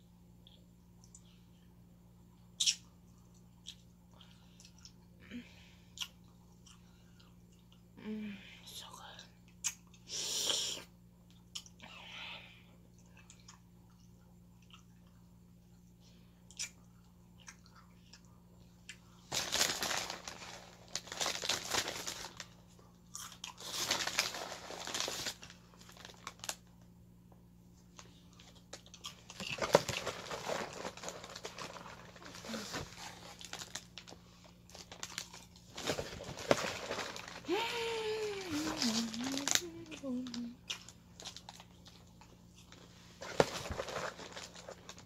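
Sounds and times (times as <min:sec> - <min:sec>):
crunching and crinkling: 0:18.9 - 0:26.8, 0:27.8 - 0:45.0.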